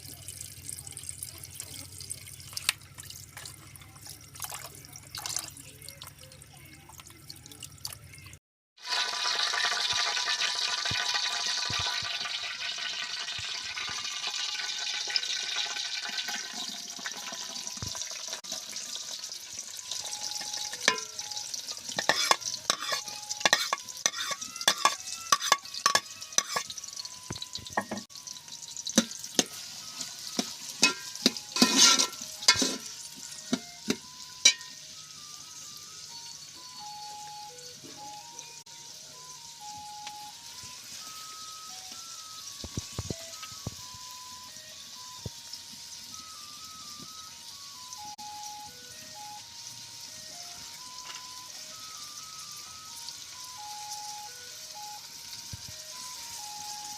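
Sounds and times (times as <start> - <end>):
food sizzling in hot oil: 8.0 - 56.9
spoon scraping a pot: 21.8 - 26.8, 29.0 - 34.7.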